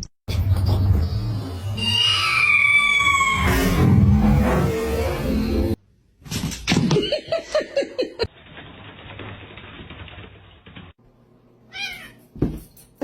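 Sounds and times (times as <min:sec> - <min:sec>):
cat meowing: 0:11.7 - 0:12.2.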